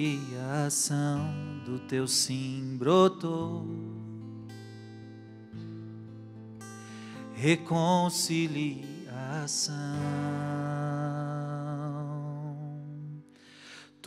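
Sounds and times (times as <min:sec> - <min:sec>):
solo voice singing: 0:00.0 - 0:04.2, 0:07.3 - 0:13.4.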